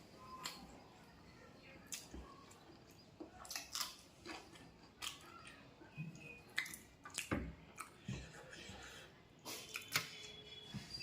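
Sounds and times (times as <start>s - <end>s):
person chewing food: 1.9s - 10.6s.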